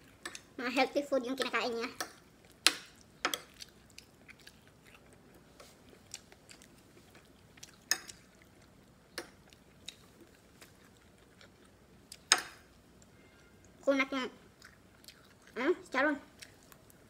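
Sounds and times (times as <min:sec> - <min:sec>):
quiet chewing: 0:02.0 - 0:12.4, 0:14.6 - 0:15.6, 0:16.3 - 0:17.0.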